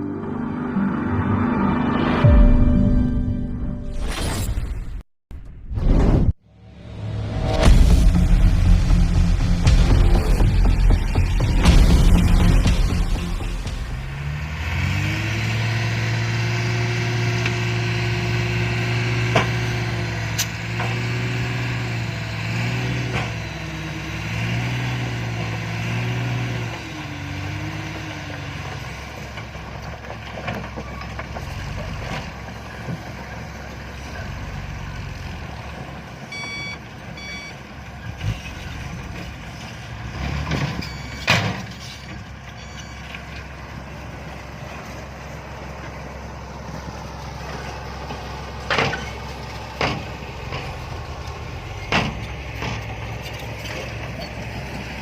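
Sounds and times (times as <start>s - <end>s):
dump truck engine running: 6.6s - 55.0s
reverse alarm beeps: 36.3s - 37.6s, 40.8s - 41.3s, 42.6s - 43.1s.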